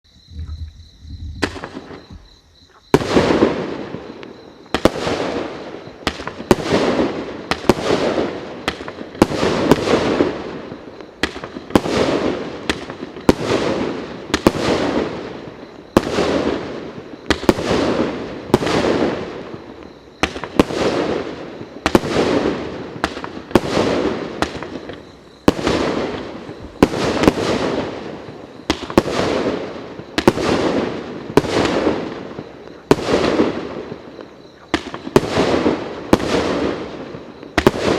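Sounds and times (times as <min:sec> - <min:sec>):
firework shots bursting: 0:01.4 - 0:02.0, 0:02.9 - 0:34.0, 0:34.7 - 0:37.9.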